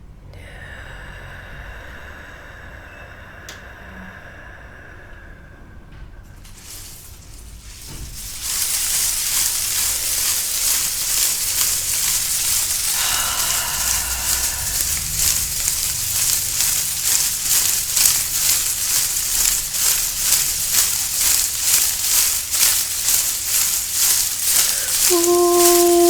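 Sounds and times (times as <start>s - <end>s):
rhythmic rustling hiss: 6.4s - 26.0s.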